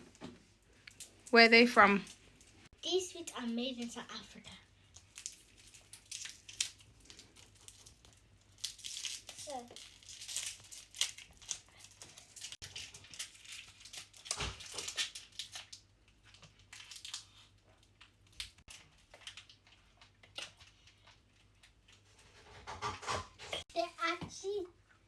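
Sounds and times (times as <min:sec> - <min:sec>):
plastic wrappers crinkling: 0:02.0 - 0:22.0.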